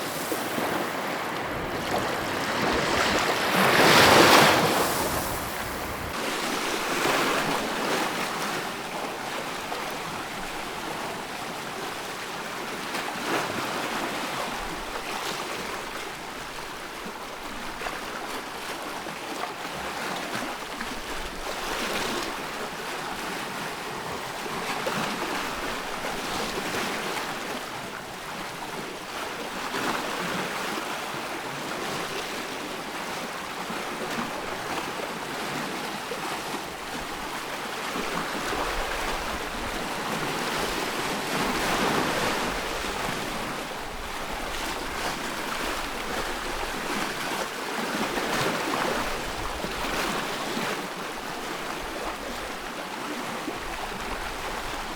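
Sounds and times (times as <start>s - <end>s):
ocean waves breaking: 0.0s - 14.0s, 33.9s - 54.9s.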